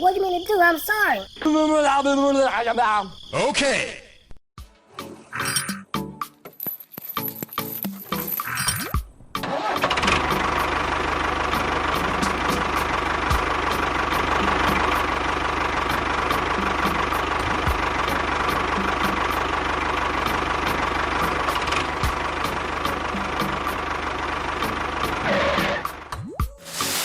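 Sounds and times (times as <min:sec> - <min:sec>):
small engine running: 0:09.4 - 0:26.0.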